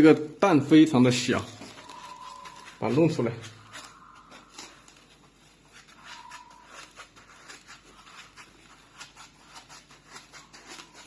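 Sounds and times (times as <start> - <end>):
faint high tone: 1.6 - 4.7.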